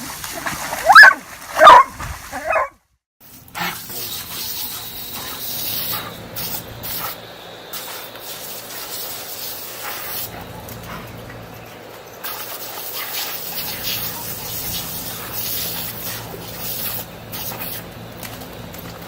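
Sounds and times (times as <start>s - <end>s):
water spraying hiss: 3.2s - 10.5s, 12.0s - 18.0s.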